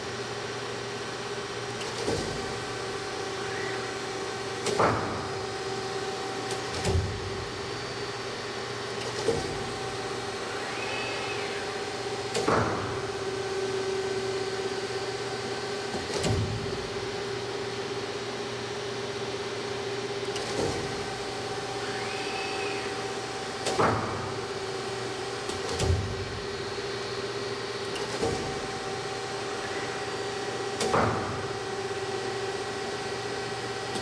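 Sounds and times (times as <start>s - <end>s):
cutting machine motor hum: 2.5s - 8.0s, 9.0s - 15.2s, 20.9s - 27.0s, 28.4s - 32.7s
rising and falling whine: 9.9s - 12.3s, 21.8s - 23.2s.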